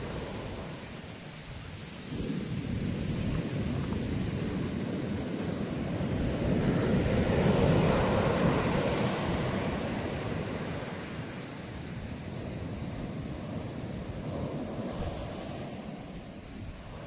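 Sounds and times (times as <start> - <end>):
ocean surf wave: 0.0 - 17.0.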